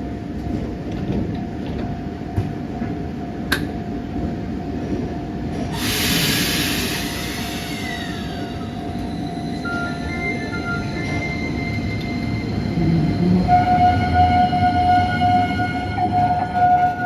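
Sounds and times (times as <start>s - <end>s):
electric tram running: 0.0s - 17.0s
loud hiss of air: 5.7s - 8.8s.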